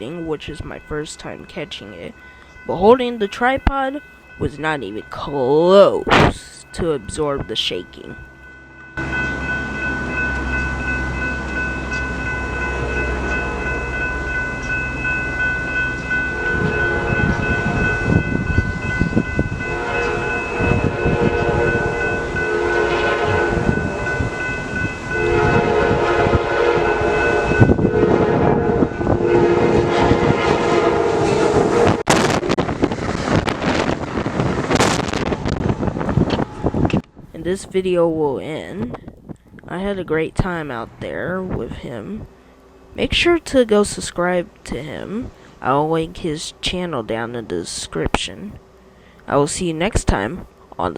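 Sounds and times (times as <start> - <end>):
train passing with low rumble: 0.0 - 49.3
train horn: 12.4 - 13.8, 16.2 - 18.1, 19.6 - 24.4, 25.0 - 32.4.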